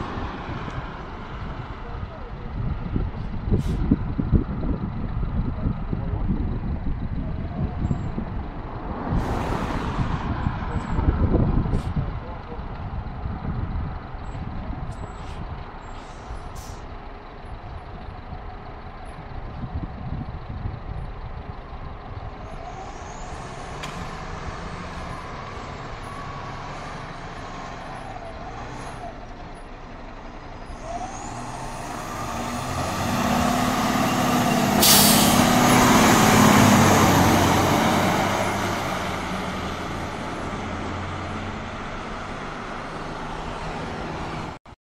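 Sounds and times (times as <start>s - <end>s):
fire engine rumble: 0.0s - 44.6s
brief high hiss: 34.8s - 35.5s.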